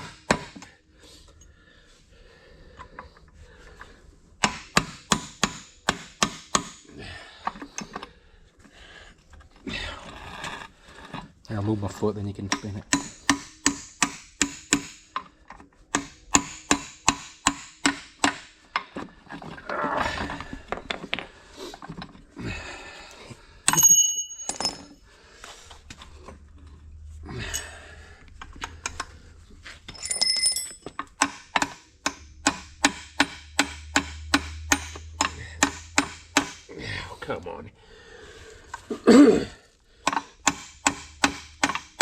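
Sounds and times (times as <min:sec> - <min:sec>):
handling and scraping: 0:18.6 - 0:22.4, 0:24.1 - 0:31.2
metallic ring: 0:23.7 - 0:25.0, 0:29.9 - 0:30.9.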